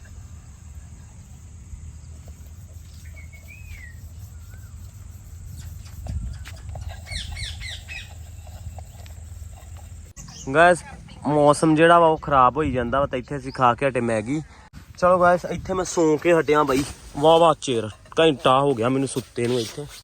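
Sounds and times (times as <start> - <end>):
birds calling: 2.0 - 12.4.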